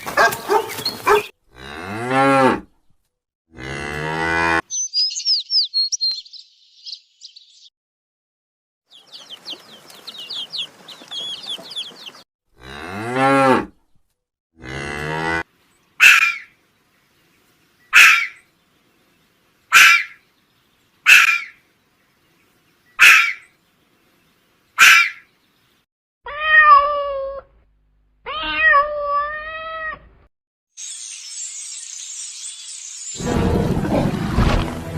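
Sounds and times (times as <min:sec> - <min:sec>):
high animal chirping: 0:04.7 - 0:07.7, 0:08.9 - 0:12.2.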